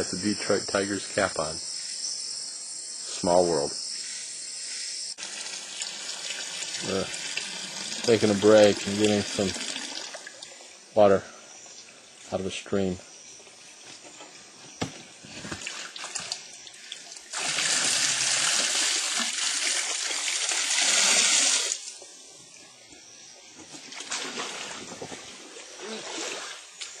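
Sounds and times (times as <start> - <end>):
rush of pouring water: 5.2 - 10.4, 15.6 - 21.9
water splashing: 15.5 - 21.9, 23.9 - 27.0.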